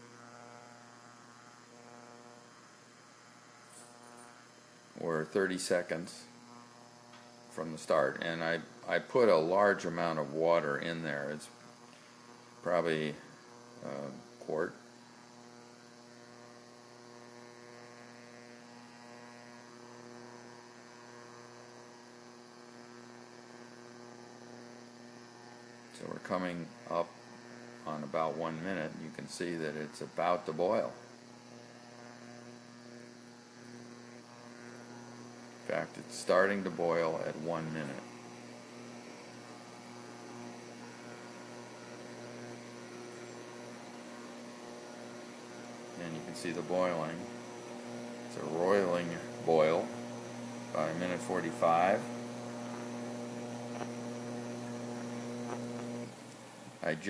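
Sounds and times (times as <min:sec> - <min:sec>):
induction stove humming: 0:00.0 - 0:57.0
water heating hiss: 0:02.3 - 0:57.0
water starting to boil: 0:35.4 - 0:57.0.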